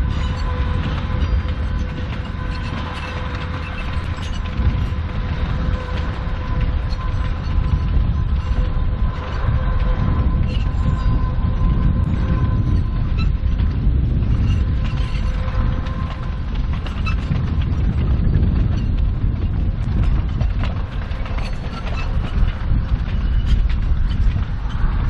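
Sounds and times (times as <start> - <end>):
steady whine: 0.0 - 25.0
train rumbling: 0.0 - 25.0.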